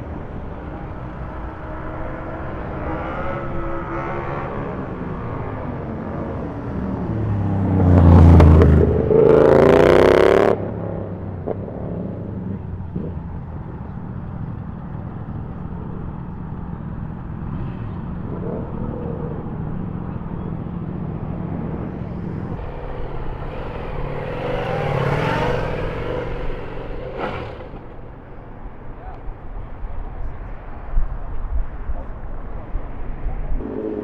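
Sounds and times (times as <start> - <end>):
motorcycle engine revving: 0.4 - 14.0, 14.8 - 28.3, 33.6 - 34.0
engines idling: 10.6 - 30.7.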